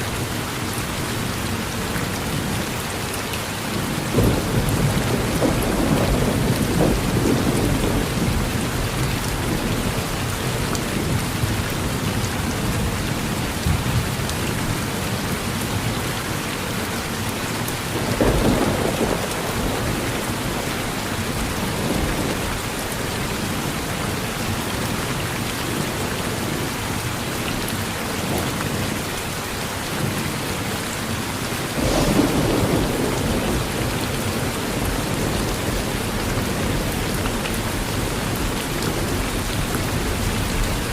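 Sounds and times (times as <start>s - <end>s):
steady rain: 0.0s - 40.9s
rolling thunder: 4.0s - 10.4s, 17.9s - 22.9s, 31.7s - 40.9s.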